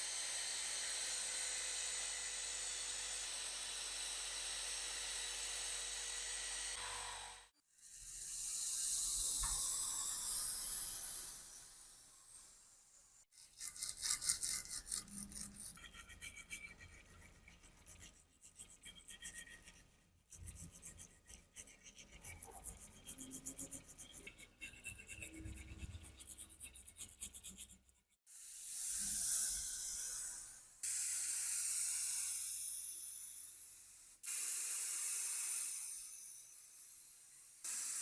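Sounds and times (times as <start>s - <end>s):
filing strokes on rusty metal: 13.3s - 33.4s.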